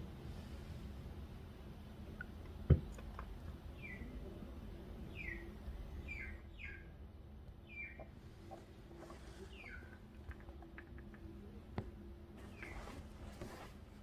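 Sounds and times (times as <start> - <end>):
low steady hum: 0.0 - 14.0
bird chirping: 3.6 - 11.6, 12.4 - 13.0.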